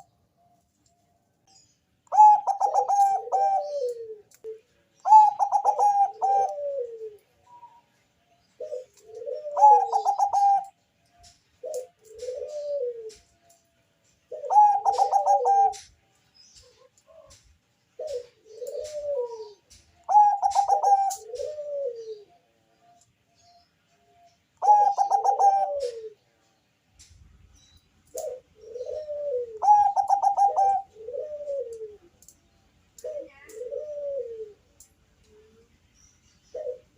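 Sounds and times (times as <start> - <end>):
dove cooing song: 0.0 - 26.6, 27.6 - 36.9.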